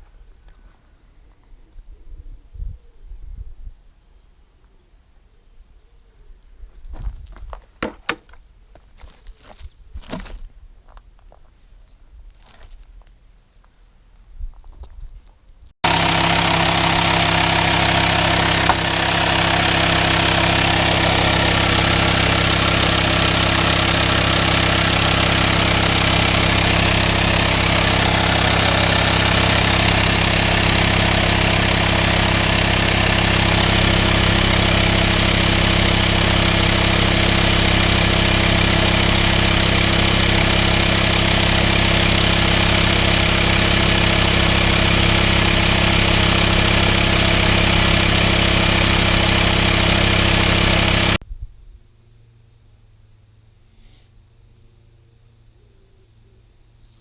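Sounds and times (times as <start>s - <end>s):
diesel engine idling: 15.8s - 51.2s
engine hissing: 15.8s - 51.2s.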